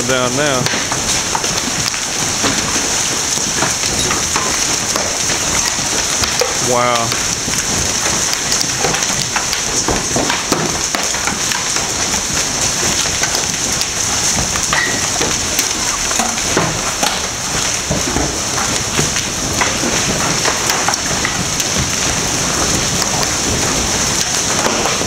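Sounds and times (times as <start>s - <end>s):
constant rushing noise: 0.0s - 25.0s
hailstones clattering: 0.0s - 25.0s.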